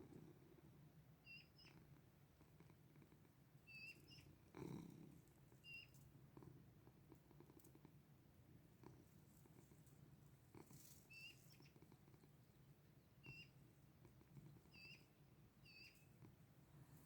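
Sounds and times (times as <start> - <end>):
faint high chirps: 1.2 - 1.8, 3.6 - 4.4, 5.6 - 6.0, 11.1 - 11.8, 13.2 - 13.6, 14.6 - 16.2.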